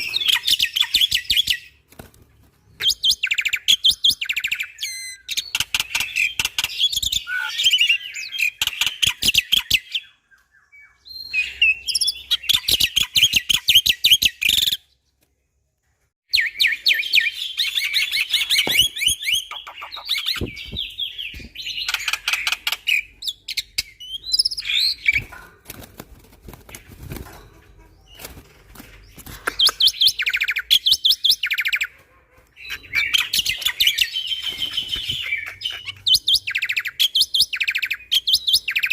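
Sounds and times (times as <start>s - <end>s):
bird singing chattering notes: 16.3s - 25.3s.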